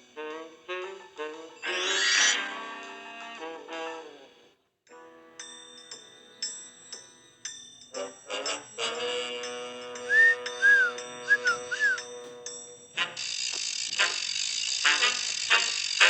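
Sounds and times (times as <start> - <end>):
whistled chirps: 10.0 - 12.2.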